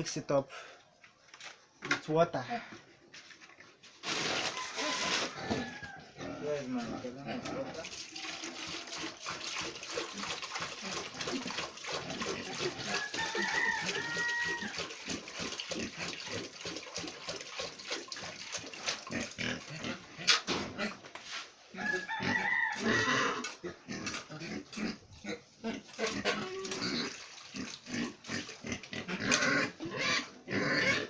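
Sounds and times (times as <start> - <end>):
rooster crowing: 4.5 - 6.6, 12.8 - 14.8, 21.8 - 23.4.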